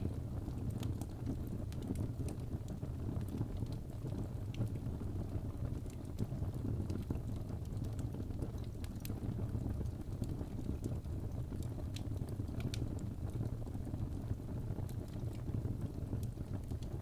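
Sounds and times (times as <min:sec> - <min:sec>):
burning wood crackling: 0:00.0 - 0:04.8, 0:05.4 - 0:12.8
fire flames rumbling: 0:00.0 - 0:17.0.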